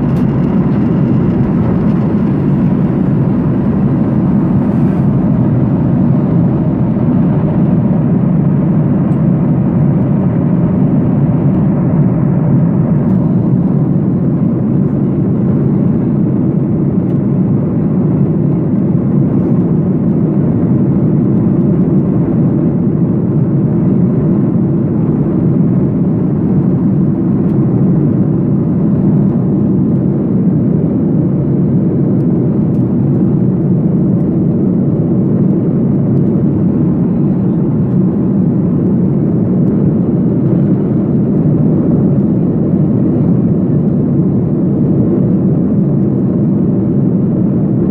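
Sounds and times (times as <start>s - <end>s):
rushing air in cabin: 0.0s - 17.2s, 32.4s - 47.9s
airliner engines humming: 0.0s - 47.9s.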